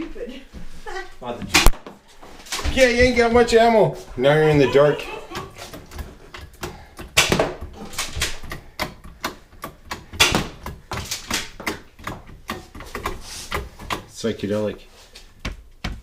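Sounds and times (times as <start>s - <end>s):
sharp knocks: 5.4s - 14.1s
irregular clicking and tapping: 5.4s - 14.2s.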